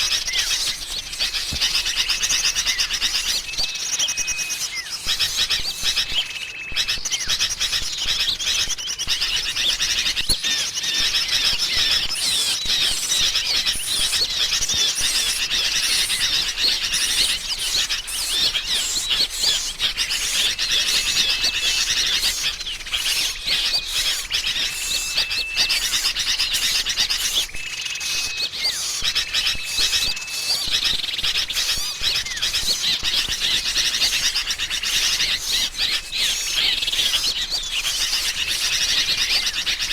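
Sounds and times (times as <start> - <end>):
birds chirping and chattering: 0.0 - 39.9
thin whistle: 2.0 - 7.1.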